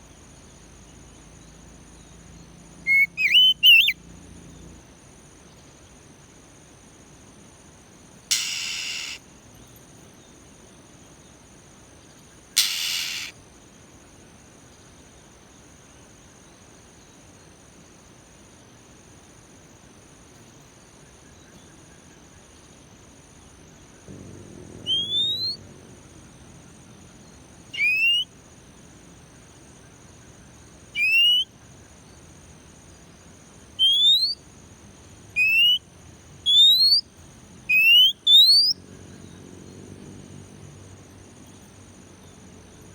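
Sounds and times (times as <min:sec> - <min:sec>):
bird harsh call: 0:02.9 - 0:04.0, 0:08.3 - 0:09.2, 0:12.6 - 0:13.4, 0:24.8 - 0:25.6, 0:27.8 - 0:28.2, 0:31.0 - 0:31.4, 0:33.8 - 0:34.4, 0:35.4 - 0:35.8, 0:37.7 - 0:38.7
bird rising whistles: 0:02.9 - 0:04.0, 0:08.3 - 0:09.2, 0:12.6 - 0:13.3, 0:24.9 - 0:25.6, 0:27.8 - 0:28.3, 0:31.0 - 0:31.5, 0:33.8 - 0:34.4, 0:35.4 - 0:35.8, 0:36.5 - 0:37.0, 0:37.7 - 0:38.8
high-pitched insect-like drone: 0:08.3 - 0:09.2, 0:12.6 - 0:13.3.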